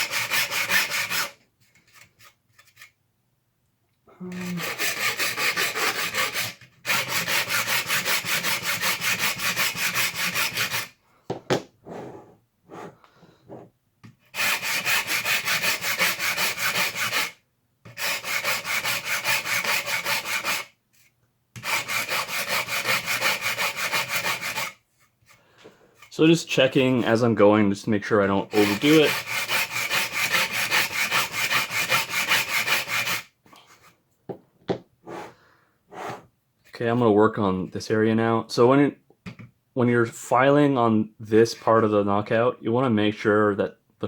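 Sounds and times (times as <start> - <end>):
file rasping on plastic: 0.0 - 3.0, 4.2 - 11.0, 11.9 - 20.8, 21.6 - 25.4, 28.5 - 34.0.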